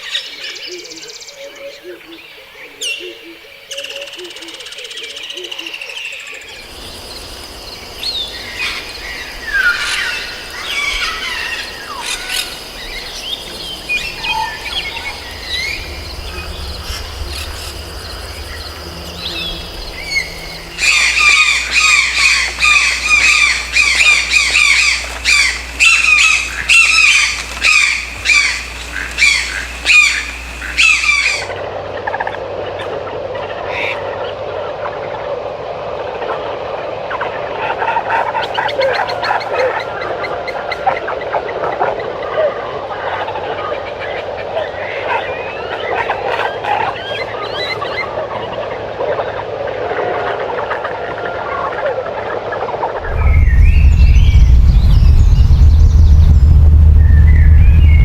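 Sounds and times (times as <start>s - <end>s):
rainforest background: 0.0s - 36.9s
loud repeated bird calls: 19.3s - 31.5s.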